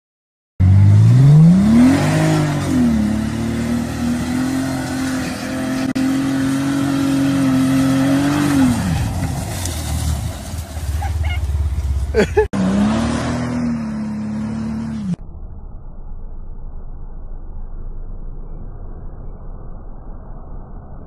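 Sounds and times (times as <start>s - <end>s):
car engine revving hard: 0.6s - 9.4s, 12.4s - 15.2s.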